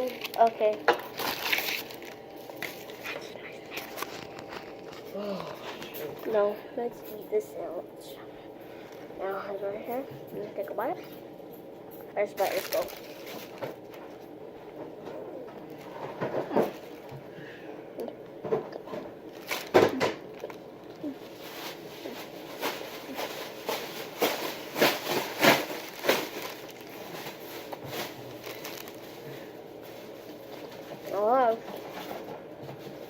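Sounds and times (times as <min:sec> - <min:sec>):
person chewing a sandwich: 0:01.0 - 0:06.2.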